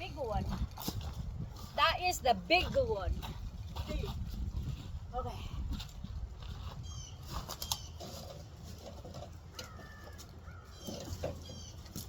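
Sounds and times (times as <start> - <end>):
birds chirping: 6.7 - 8.6, 9.5 - 12.0.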